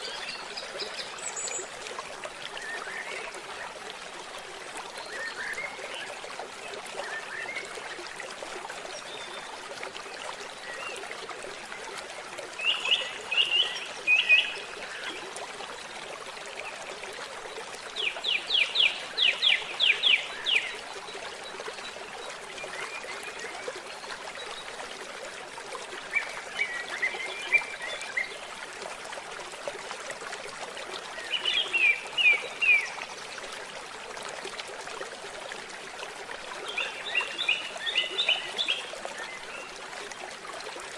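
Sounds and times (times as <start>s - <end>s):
stream trickling: 0.0s - 40.9s.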